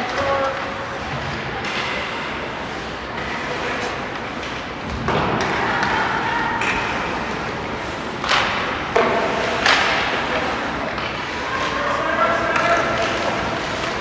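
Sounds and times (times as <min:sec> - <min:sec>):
voices and shouts: 0:05.3 - 0:07.7, 0:10.4 - 0:14.0.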